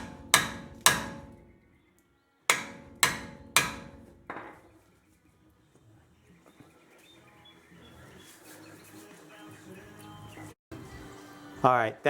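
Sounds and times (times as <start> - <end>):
hammer striking metal: 0.0 - 1.7, 2.5 - 4.6.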